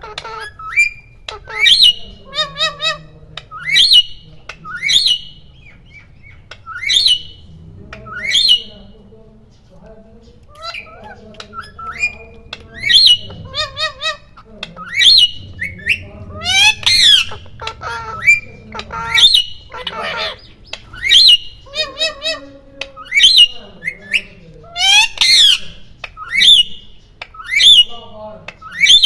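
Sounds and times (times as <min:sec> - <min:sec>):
parrots squawking: 0:00.0 - 0:09.1, 0:10.3 - 0:29.0.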